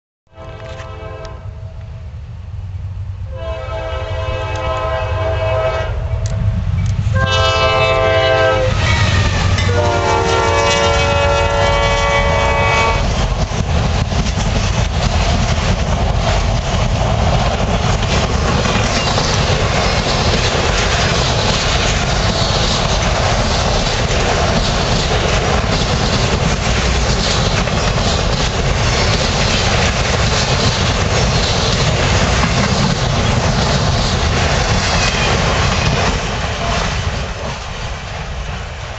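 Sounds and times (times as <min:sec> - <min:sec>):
locomotive air horn: 0:00.3 - 0:01.8, 0:03.3 - 0:06.3, 0:07.1 - 0:13.1
wheels clicking over rail joints: 0:13.0 - 0:38.6.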